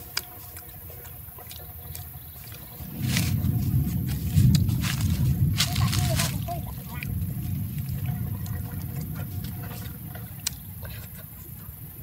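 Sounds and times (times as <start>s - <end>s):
wet mouth clicks: 0.0s - 2.7s, 8.3s - 11.3s
man chewing: 0.0s - 5.5s, 6.4s - 11.7s
loud low rumble: 2.6s - 11.0s.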